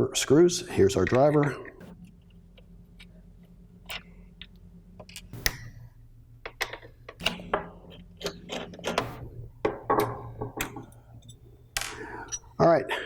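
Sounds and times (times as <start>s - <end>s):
faint low hum: 0.0s - 13.0s
screwdriver clicks and knocks on metal: 6.4s - 12.4s.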